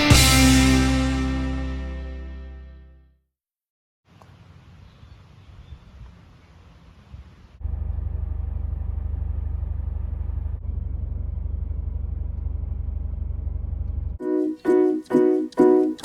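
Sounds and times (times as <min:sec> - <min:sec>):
car engine and road noise: 0:07.6 - 0:14.2.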